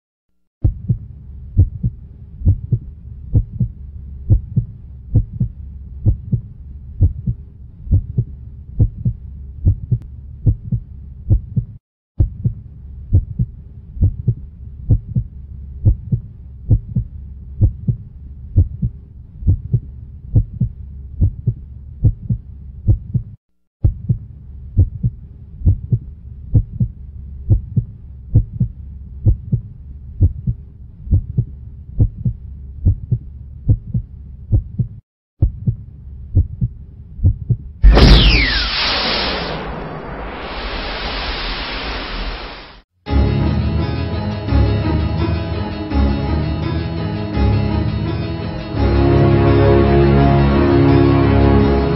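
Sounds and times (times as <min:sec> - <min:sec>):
heartbeat double thump: 0:00.6 - 0:03.7, 0:04.3 - 0:18.0, 0:18.6 - 0:26.9, 0:27.5 - 0:35.8, 0:36.4 - 0:39.1
low hum: 0:37.8 - 0:42.8.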